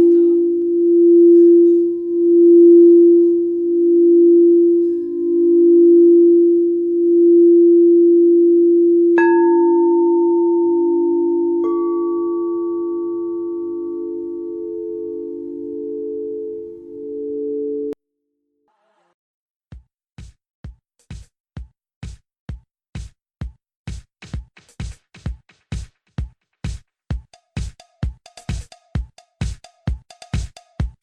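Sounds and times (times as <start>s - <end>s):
higher singing bowl tone: 0.0s - 18.0s
low singing bowl tone: 0.0s - 18.0s.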